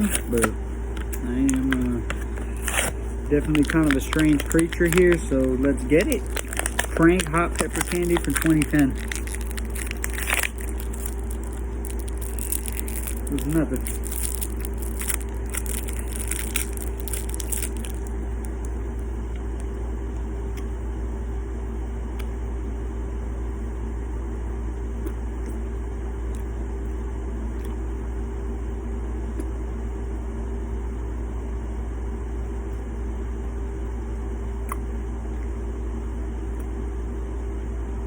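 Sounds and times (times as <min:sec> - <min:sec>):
hard candy crunching: 0:00.0 - 0:18.8
steady low hum: 0:00.0 - 0:38.0.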